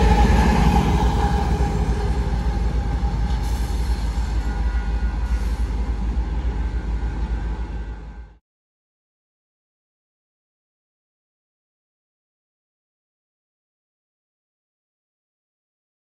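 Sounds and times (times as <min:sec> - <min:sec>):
freight train wheels rumbling on rail: 0:00.0 - 0:08.4.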